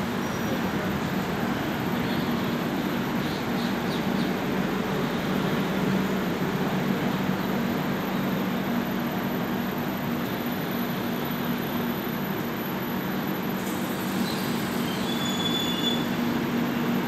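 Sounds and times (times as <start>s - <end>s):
train wheels rumbling on rails: 0.0s - 11.6s, 13.5s - 17.0s
high brake squeal: 13.6s - 16.3s.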